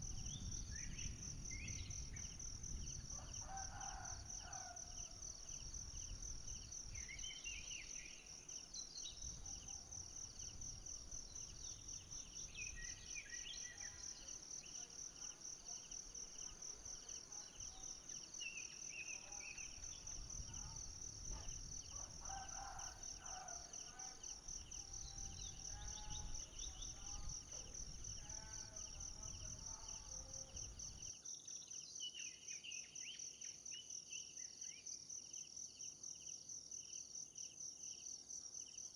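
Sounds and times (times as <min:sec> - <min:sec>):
insects trilling: 0:00.0 - 0:31.1.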